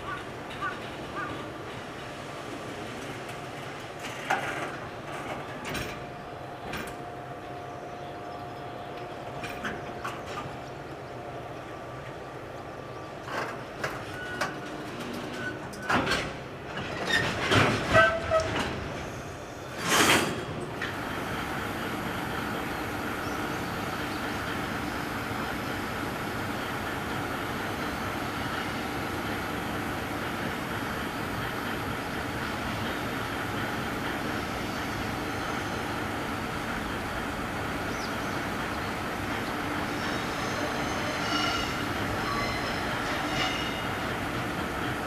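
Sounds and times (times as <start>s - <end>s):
freight train rumble: 0.0s - 45.0s
train clanks: 0.0s - 45.0s
short wheel squeals: 14.0s - 16.0s, 17.0s - 20.3s, 40.0s - 43.9s
thin held squeal: 40.0s - 43.8s.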